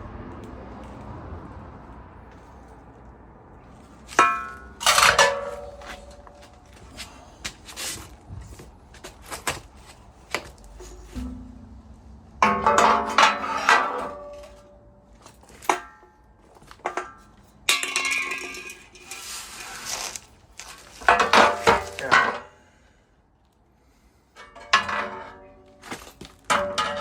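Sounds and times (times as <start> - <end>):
metal tools clanking: 4.0 - 7.2, 10.7 - 19.6, 21.0 - 22.5, 24.4 - 27.0.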